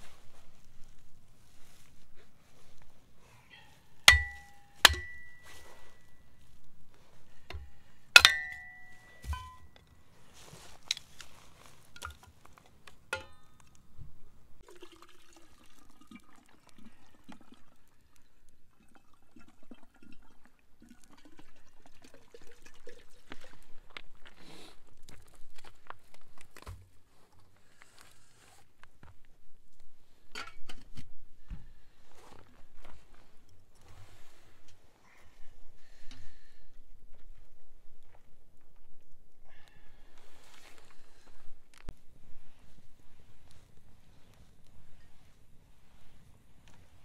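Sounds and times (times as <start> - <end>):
metal clinks: 4.1 - 6.0, 7.5 - 9.8
water poured into metal kettle: 14.6 - 18.2.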